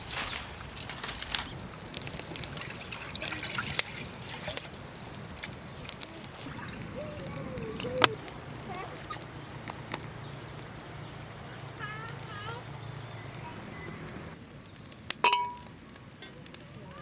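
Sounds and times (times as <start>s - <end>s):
water trickling: 2.2s - 14.4s.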